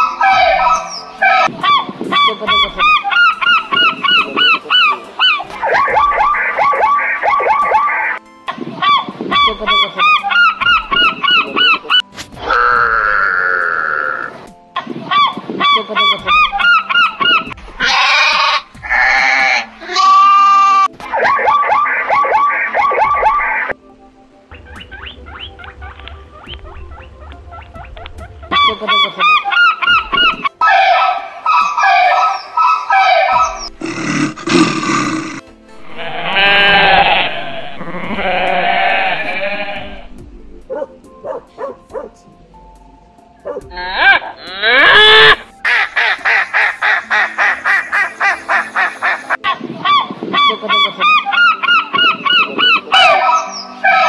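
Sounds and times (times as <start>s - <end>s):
birdcalls: 0.0s - 8.2s, 8.8s - 12.7s, 15.1s - 23.7s, 24.5s - 34.0s, 43.4s - 54.0s
sheep bleating: 17.8s - 20.9s, 35.8s - 40.1s, 43.7s - 45.4s.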